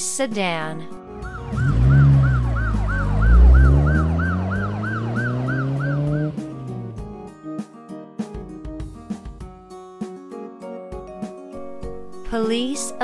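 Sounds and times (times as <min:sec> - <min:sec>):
light music: 0:00.0 - 0:13.0
police siren yelp: 0:01.2 - 0:06.6
low vehicle rumble: 0:01.2 - 0:07.0.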